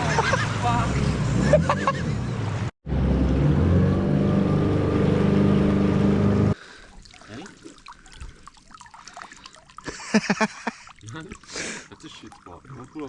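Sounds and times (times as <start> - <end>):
outboard motor running: 4.4 - 6.6
faint trickling water: 6.6 - 13.0.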